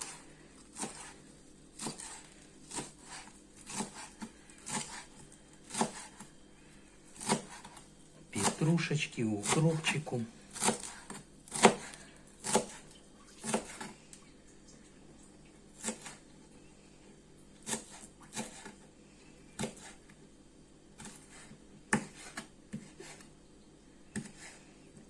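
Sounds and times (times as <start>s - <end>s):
knife chopping on wooden board: 0.0s - 1.2s, 1.8s - 6.3s, 7.2s - 7.8s, 10.5s - 13.9s, 15.8s - 16.2s, 17.6s - 18.8s, 19.6s - 20.0s, 21.0s - 23.3s, 24.1s - 24.6s.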